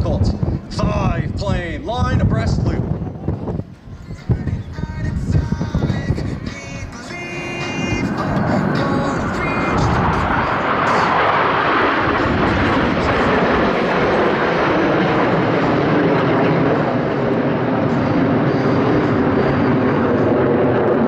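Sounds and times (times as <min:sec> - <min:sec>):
jets flying by: 0:05.7 - 0:21.0.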